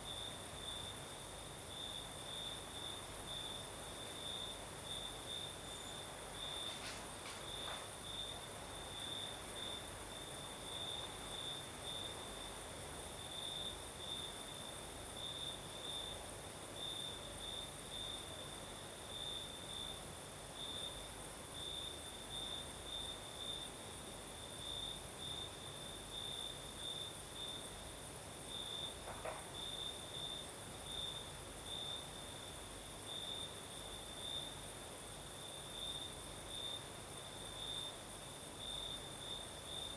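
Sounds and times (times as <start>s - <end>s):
soft hiss: 0.0s - 13.1s
crickets chirping: 0.0s - 39.9s.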